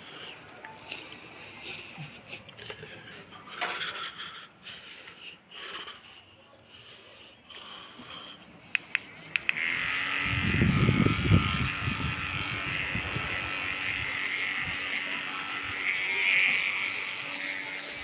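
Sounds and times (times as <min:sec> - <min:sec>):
electric fan running: 0:07.5 - 0:18.0
fan rumble: 0:07.6 - 0:18.0
switch clicks: 0:08.7 - 0:09.6.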